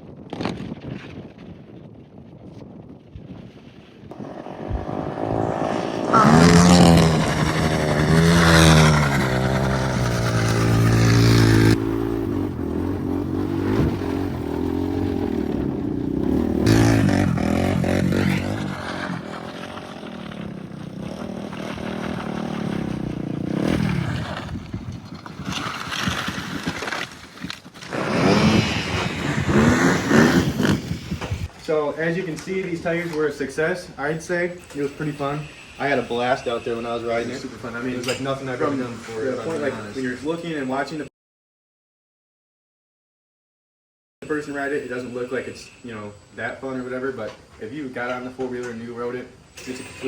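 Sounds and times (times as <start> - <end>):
quad engine revving: 4.1 - 24.8, 27.8 - 31.5.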